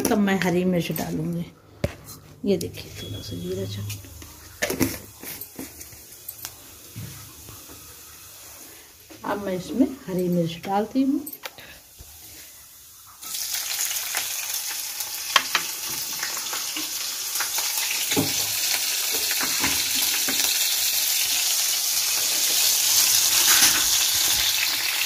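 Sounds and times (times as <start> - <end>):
chillies sizzling in hot oil: 2.9 - 25.0.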